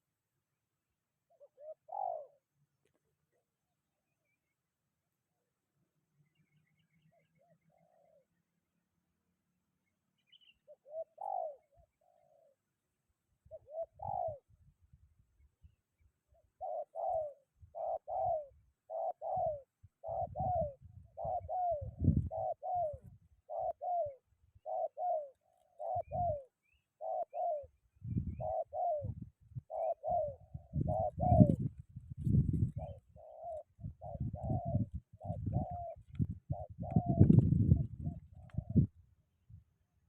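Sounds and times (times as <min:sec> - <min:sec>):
dove cooing: 0:01.3 - 0:03.6, 0:07.1 - 0:08.4, 0:10.6 - 0:12.7, 0:13.4 - 0:14.6, 0:16.3 - 0:39.0
wind buffeting microphone: 0:20.1 - 0:23.3, 0:28.0 - 0:29.7, 0:30.5 - 0:33.0, 0:33.8 - 0:39.6.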